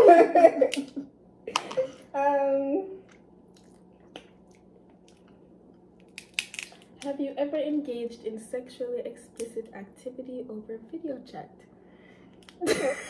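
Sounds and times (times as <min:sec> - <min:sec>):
steady low hum: 0:00.0 - 0:13.0
woman's voice: 0:02.1 - 0:03.0, 0:07.0 - 0:11.6
chewing and wet clicks: 0:03.1 - 0:07.1.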